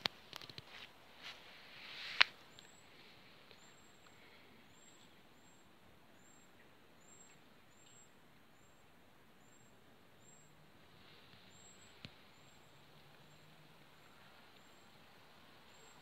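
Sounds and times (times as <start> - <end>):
plants rustling: 0.0 - 3.7
small bird chirping: 11.2 - 16.0.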